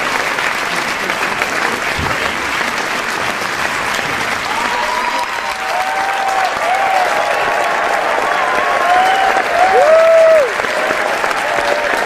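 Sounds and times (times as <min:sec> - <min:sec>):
crowd applauding: 0:00.0 - 0:12.0
whooping cheers: 0:04.4 - 0:12.0.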